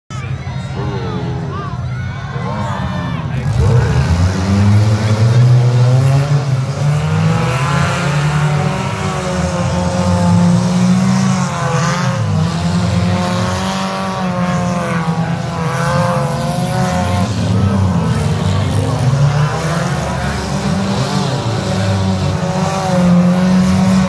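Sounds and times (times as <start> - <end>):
car engines revving hard: 0.1 - 24.0.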